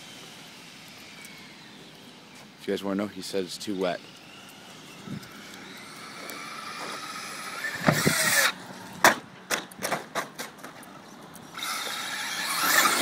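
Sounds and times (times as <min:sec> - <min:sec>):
electric motor whining: 0:00.0 - 0:02.6, 0:03.2 - 0:09.0, 0:11.4 - 0:13.0.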